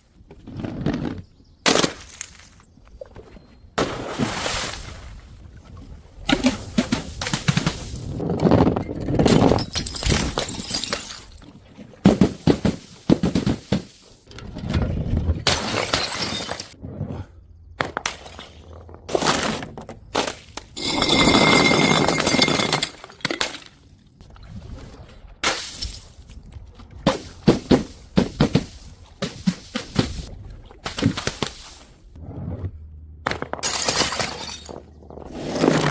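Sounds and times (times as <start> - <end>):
glass bottles shattering: 9.1 - 11.5, 15.5 - 16.8, 20.7 - 23.7, 33.6 - 35.0
broken glass clinking: 20.8 - 23.0.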